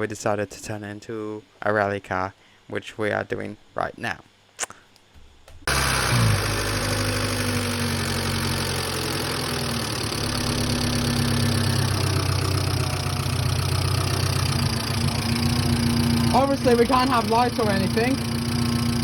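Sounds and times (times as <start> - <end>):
car engine idling: 5.7 - 19.0.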